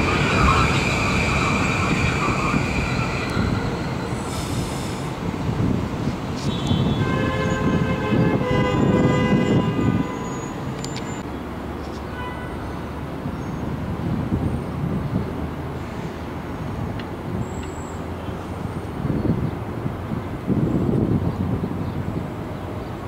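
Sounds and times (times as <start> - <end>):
whining tones of train motors: 0.0 - 6.3
electric train rumbling: 0.0 - 11.9.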